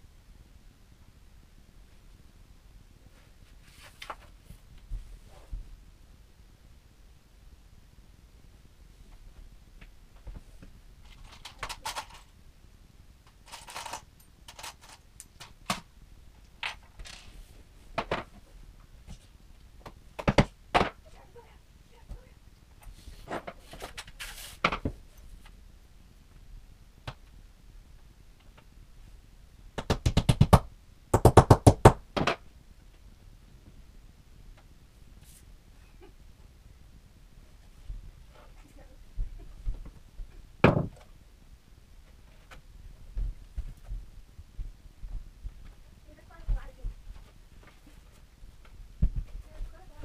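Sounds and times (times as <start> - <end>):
wooden furniture parts knocking: 40.6 - 41.0.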